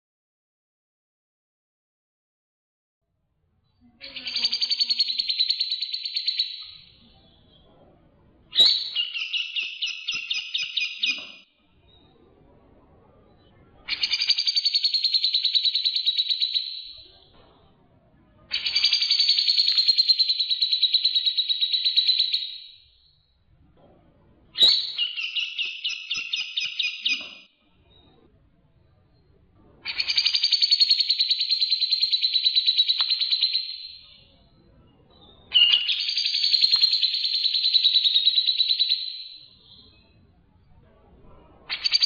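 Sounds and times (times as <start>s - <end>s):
birds chattering: 4.0s - 7.6s, 35.5s - 39.0s.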